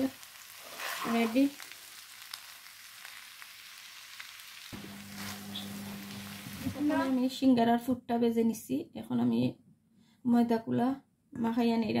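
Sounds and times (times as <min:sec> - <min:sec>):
food sizzling in a pan: 0:00.0 - 0:07.4
spatula scraping pan: 0:00.6 - 0:01.4, 0:04.8 - 0:07.2.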